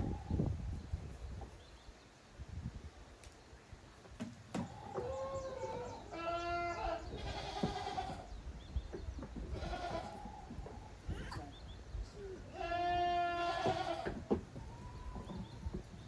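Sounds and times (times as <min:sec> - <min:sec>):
goat kids bleating: 0:05.4 - 0:08.3, 0:09.4 - 0:10.3, 0:12.4 - 0:15.4.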